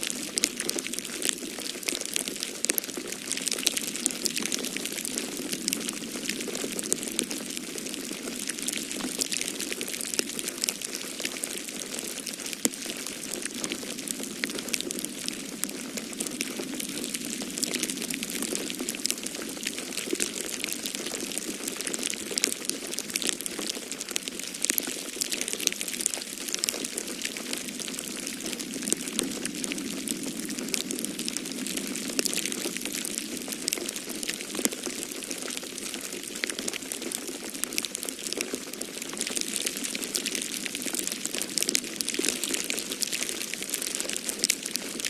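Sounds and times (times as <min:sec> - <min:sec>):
wood fire crackling: 0:08.5 - 0:30.2.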